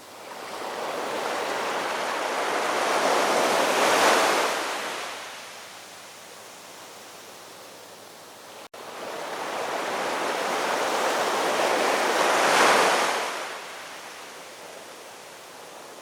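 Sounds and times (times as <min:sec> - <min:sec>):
ocean waves breaking on shore: 0:00.0 - 0:07.9, 0:08.5 - 0:16.0
steady surf hiss: 0:00.0 - 0:16.0.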